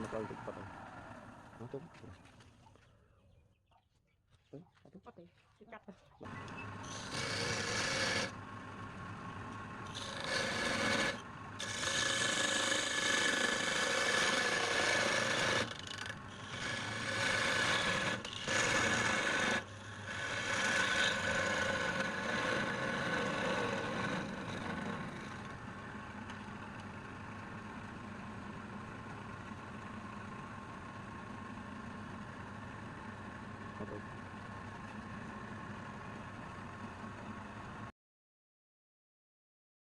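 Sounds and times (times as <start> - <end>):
lathe motor hum: 6.7 - 29.8
tool rasping on spinning wood: 6.8 - 8.4, 9.9 - 25.6.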